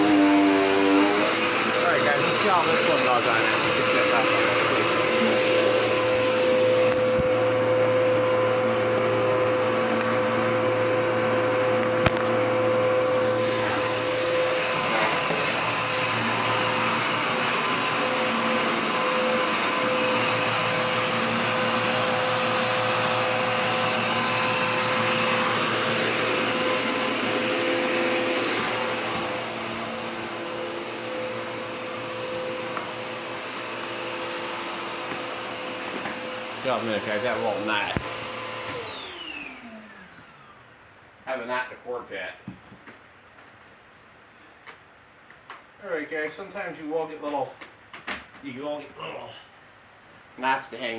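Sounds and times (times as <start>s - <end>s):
vacuum cleaner running: 0.0s - 41.6s, 50.4s - 50.9s.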